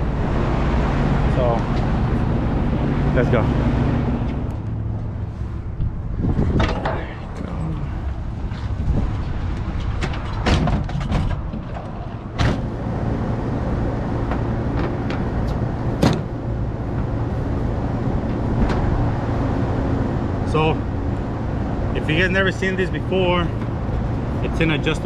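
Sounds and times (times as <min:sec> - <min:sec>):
steady low rumble: 0:00.0 - 0:25.0
knocks and clatter of van doors: 0:09.1 - 0:12.8, 0:14.2 - 0:17.1.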